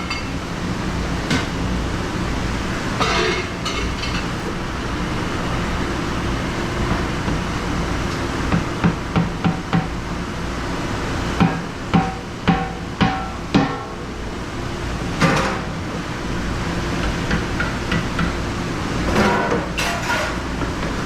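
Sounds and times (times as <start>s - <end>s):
low machine hum: 0.0s - 21.0s
kitchenware clatter: 3.0s - 4.5s, 15.2s - 15.7s, 19.1s - 20.7s.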